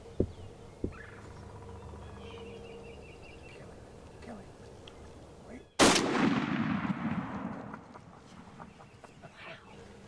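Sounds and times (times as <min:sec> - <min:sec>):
shotgun shot: 0:05.8 - 0:08.0.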